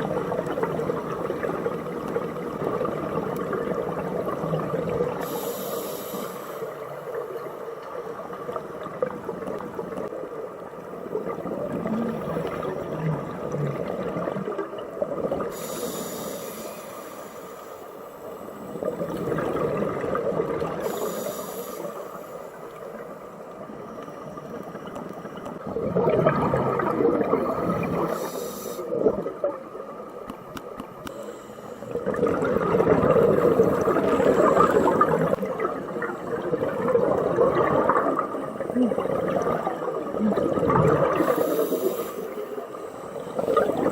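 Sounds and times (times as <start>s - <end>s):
regulator hiss on inhalation: 5.2s - 6.9s, 15.5s - 18.9s, 20.8s - 22.7s, 27.6s - 29.0s, 31.0s - 32.0s, 41.1s - 43.4s
bubbling on exhalation: 25.6s - 28.1s, 32.0s - 41.4s.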